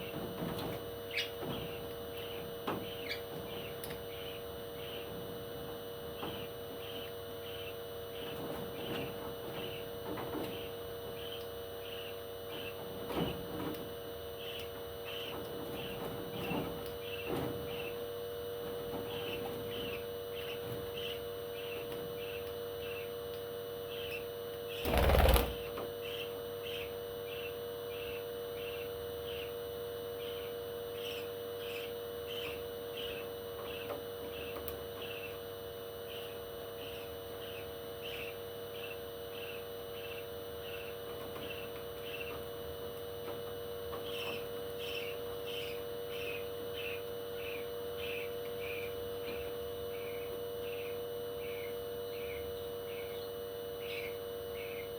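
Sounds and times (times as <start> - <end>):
wing flapping: 24.8 - 25.8.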